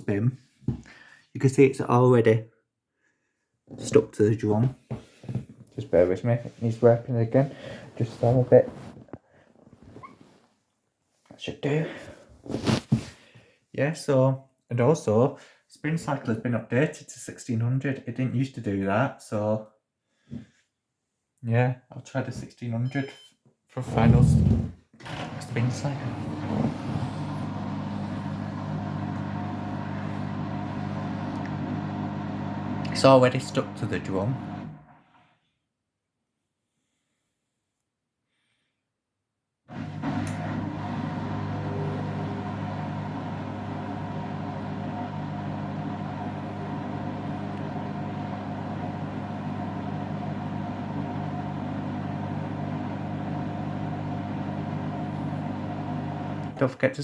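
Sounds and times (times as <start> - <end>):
washing machine pump humming: 24.0 - 35.0, 39.7 - 56.6.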